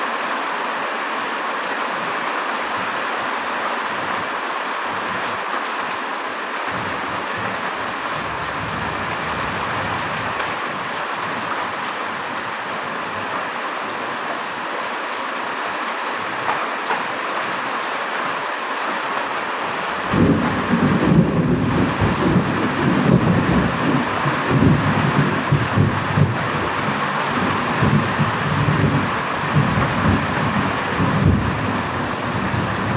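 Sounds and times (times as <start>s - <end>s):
heavy rain falling: 0.0s - 32.9s
low rolling thunder: 20.1s - 32.9s.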